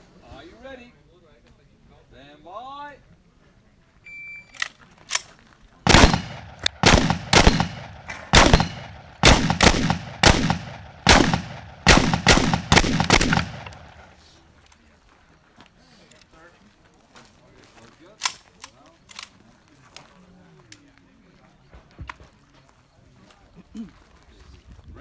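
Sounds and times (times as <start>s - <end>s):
shotgun shots: 5.9s - 14.2s.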